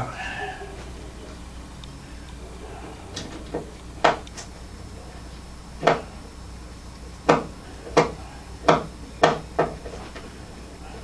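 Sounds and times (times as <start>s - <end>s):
sharp clicks and knocks: 3.1s - 4.5s, 5.8s - 6.1s, 7.2s - 10.3s.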